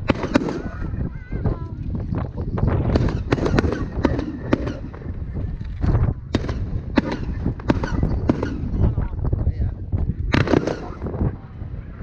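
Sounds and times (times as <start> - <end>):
fireworks bangs and pops: 0.0 - 1.1, 2.7 - 5.2, 5.8 - 9.0, 9.9 - 11.2
steady low rumble: 0.0 - 12.0.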